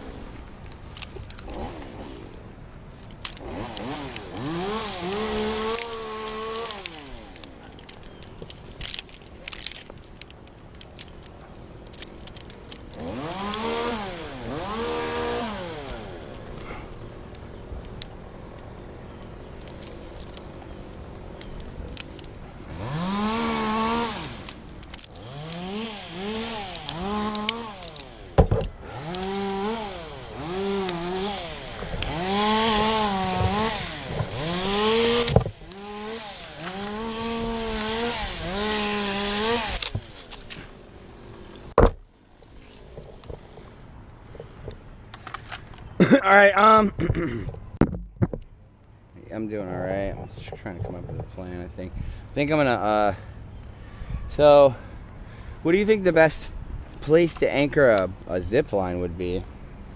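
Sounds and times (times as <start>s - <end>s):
metallic jingling and clicks: 2.9s - 14.6s, 15.8s - 16.7s, 19.1s - 25.7s
chainsaw revving: 3.3s - 8.0s, 12.9s - 16.8s, 22.6s - 40.0s.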